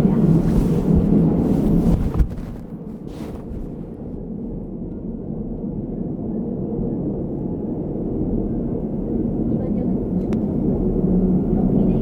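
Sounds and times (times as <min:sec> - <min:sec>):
train wheels rumbling on rails: 0:00.0 - 0:04.1.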